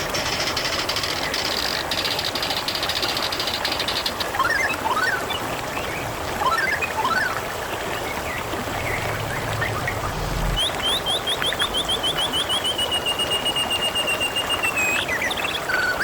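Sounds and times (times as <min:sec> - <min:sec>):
water trickling and splashing: 0:00.0 - 0:16.0
fast rising bird notes: 0:08.0 - 0:13.8.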